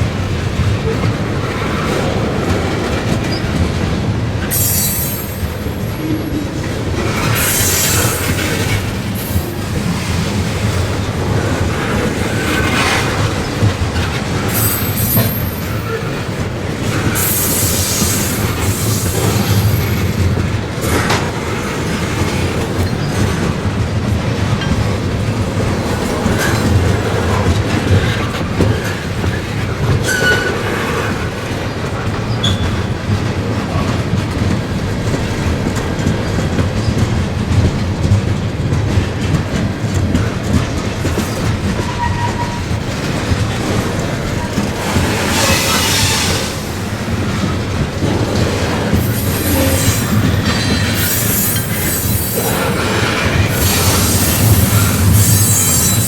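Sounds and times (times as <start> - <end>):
freight train rumbling: 0.0 - 56.0
high-pitched wheel squeals: 4.6 - 6.4, 14.5 - 16.1, 48.9 - 52.8, 53.5 - 56.0.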